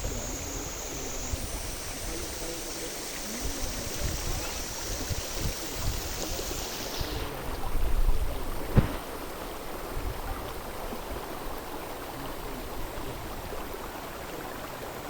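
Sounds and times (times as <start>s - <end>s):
short low thump: 8.7s - 9.1s.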